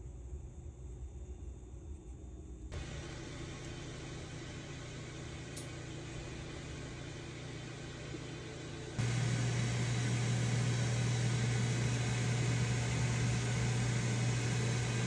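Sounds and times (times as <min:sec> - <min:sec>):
coffee maker pump humming and hissing: 0:02.8 - 0:15.0.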